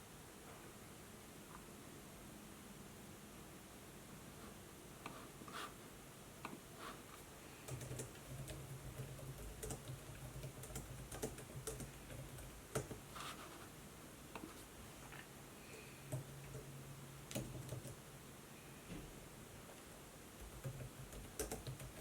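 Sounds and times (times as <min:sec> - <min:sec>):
laptop keyboard typing: 0:07.6 - 0:13.1, 0:16.1 - 0:16.7, 0:17.3 - 0:18.0, 0:20.4 - 0:22.0.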